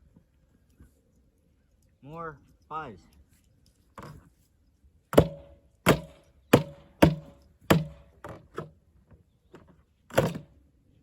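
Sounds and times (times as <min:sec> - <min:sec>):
heavy blows on metal shell: 0:05.2 - 0:08.2.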